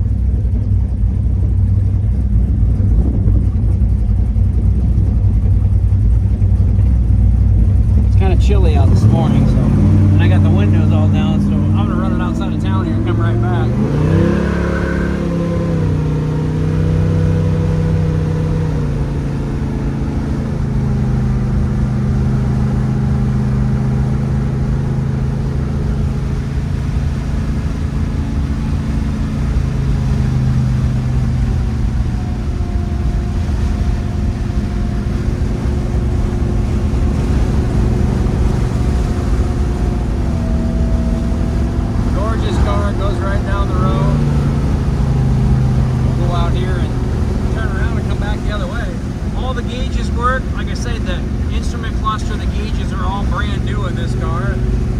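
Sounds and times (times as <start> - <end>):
car engine accelerating: 0.0 - 54.9
road and wind noise: 0.0 - 54.9.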